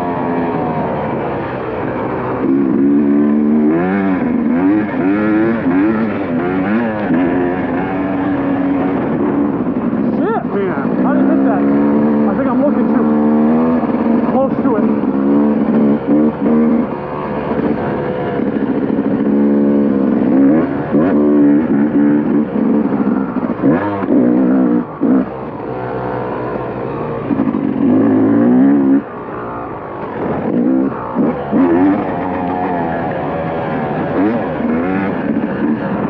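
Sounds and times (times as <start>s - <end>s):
motocross bike engine revving: 0.0s - 36.0s.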